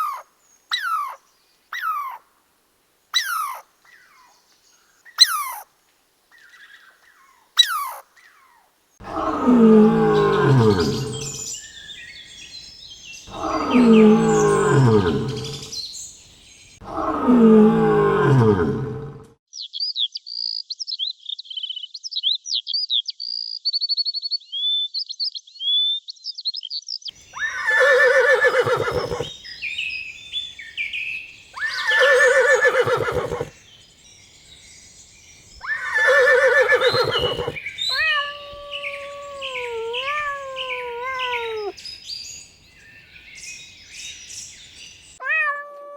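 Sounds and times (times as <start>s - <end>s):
high twittering birdsong: 0.0s - 2.2s, 3.1s - 45.2s
chirping call gliding up and down: 27.2s - 45.2s.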